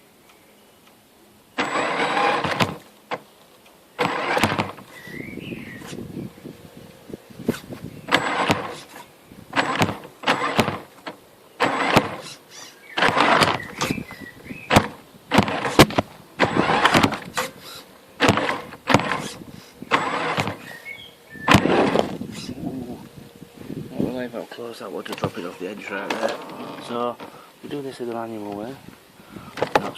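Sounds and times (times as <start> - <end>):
toy truck electric motor whirring: 1.6 - 2.9, 4.0 - 5.2, 7.4 - 20.8, 21.4 - 22.6.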